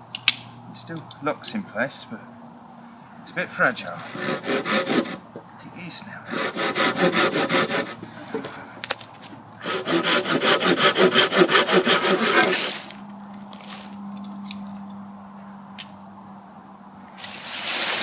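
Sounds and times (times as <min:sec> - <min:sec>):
hand saw cutting wood: 0:03.9 - 0:05.2, 0:06.3 - 0:08.5, 0:09.6 - 0:13.0.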